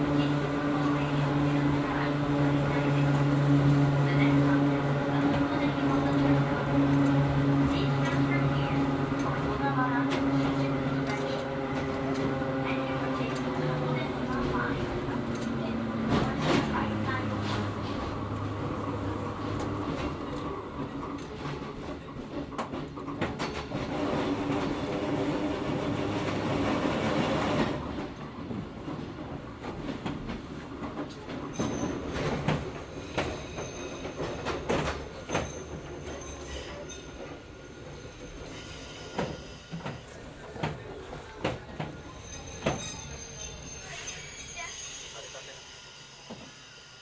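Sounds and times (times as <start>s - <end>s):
high wheel squeals: 42.0s - 47.0s.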